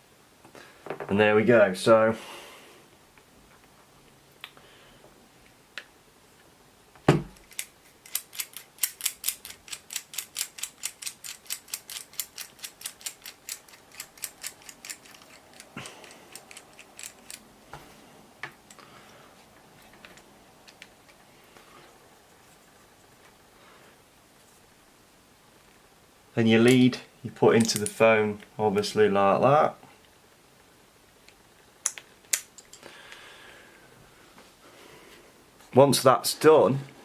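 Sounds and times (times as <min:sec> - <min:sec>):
small parts tapping: 0:07.3 - 0:17.4, 0:31.3 - 0:32.9.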